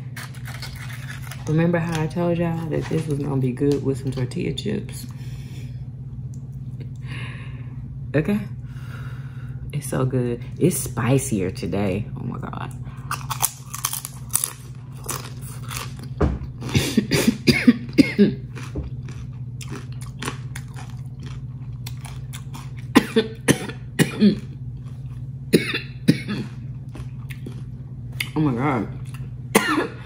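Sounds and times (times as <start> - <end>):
tortilla chips crunching: 0.0 - 4.2, 13.0 - 17.1, 17.8 - 23.4, 24.3 - 25.3, 26.4 - 28.4
steady low hum: 0.0 - 30.0
person coughing: 16.6 - 18.4, 22.9 - 24.5, 25.5 - 26.6, 29.5 - 30.0.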